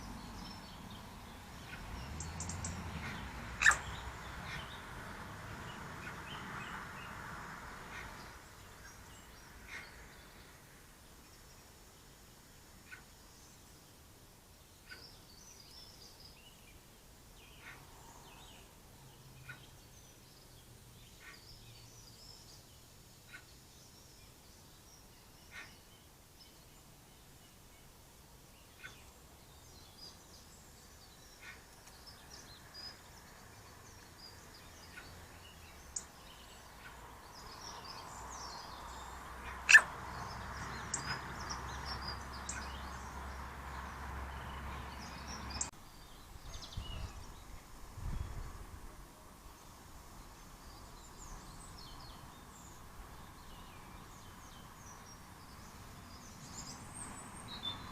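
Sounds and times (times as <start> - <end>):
birds chirping: 0.0 - 7.2, 14.6 - 47.6.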